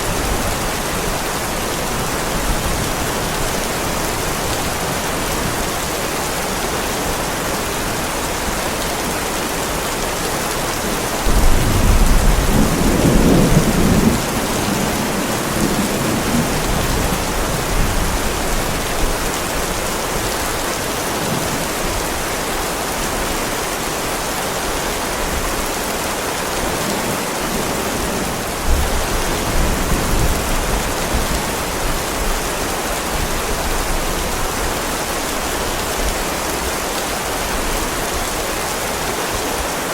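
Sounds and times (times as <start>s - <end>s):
heavy rain on driveway: 0.0s - 39.9s
thunder rumbling: 11.2s - 18.3s.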